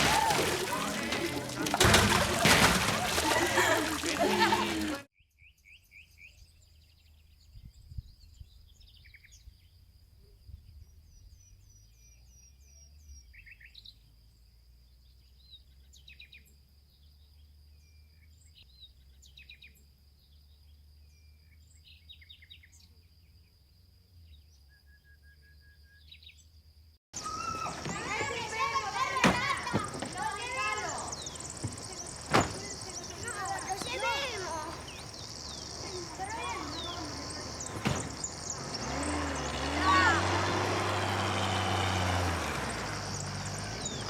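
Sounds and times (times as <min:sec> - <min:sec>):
birds chirping: 0:00.0 - 0:05.1, 0:27.2 - 0:44.0.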